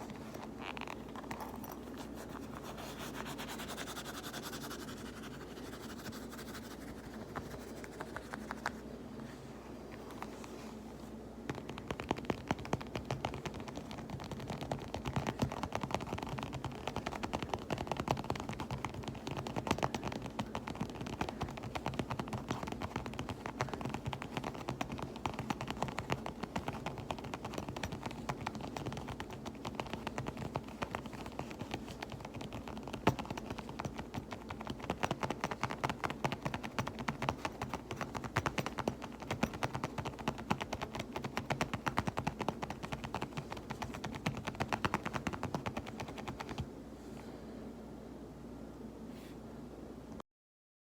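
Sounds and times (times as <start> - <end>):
finger tapping on fabric pouch: 11.4 - 46.6.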